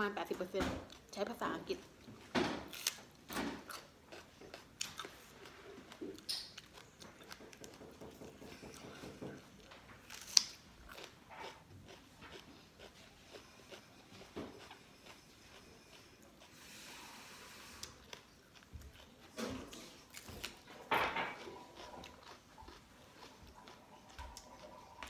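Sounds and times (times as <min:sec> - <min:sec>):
person crunching raw pepper: 0:02.7 - 0:07.7, 0:10.0 - 0:16.7, 0:21.4 - 0:24.8.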